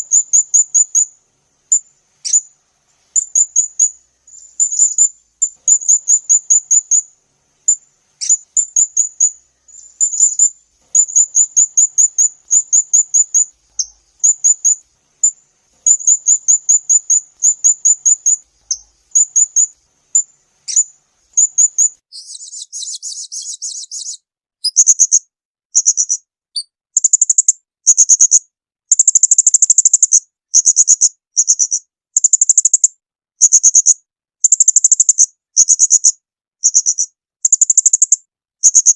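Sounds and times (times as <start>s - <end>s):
songbird singing rapid notes: 0.0s - 38.9s
bird buzzy rattle: 1.7s - 22.0s.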